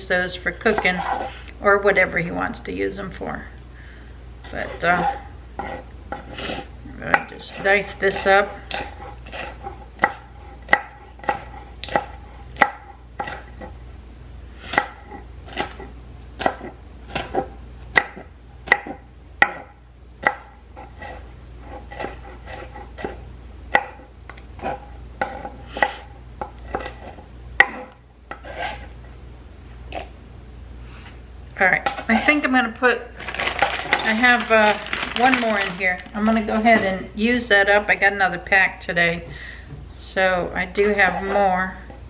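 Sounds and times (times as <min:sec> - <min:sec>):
knife chopping on cutting board: 0:07.1 - 0:13.8, 0:14.7 - 0:28.9.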